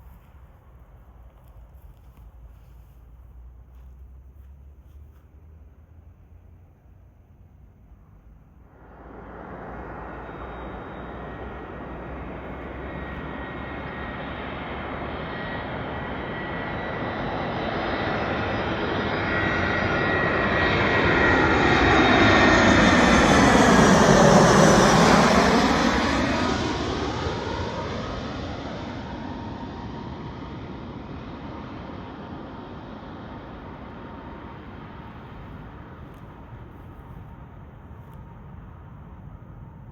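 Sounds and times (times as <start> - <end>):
airliner flying past: 8.2 - 39.9.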